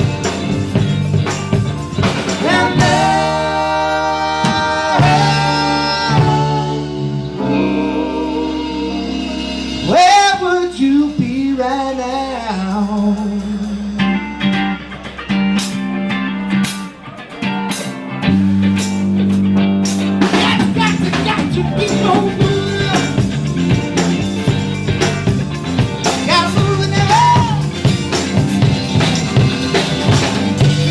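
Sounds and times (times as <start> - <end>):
drums and cymbals: 0.0 - 30.9
guitar: 0.0 - 30.9
person singing: 2.2 - 14.1, 20.3 - 23.4, 26.2 - 27.7.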